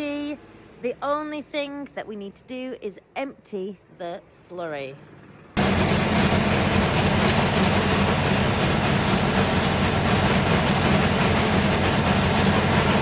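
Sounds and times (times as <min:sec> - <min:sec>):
tractor engine running under load: 0:05.6 - 0:13.0.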